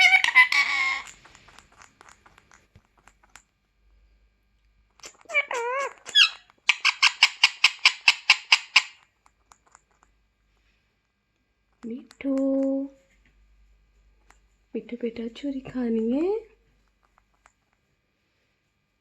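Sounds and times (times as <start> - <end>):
parrot warbling call: 0.0 - 1.2, 5.1 - 9.0
parrot sharp squeaks: 0.0 - 1.3, 5.0 - 9.0.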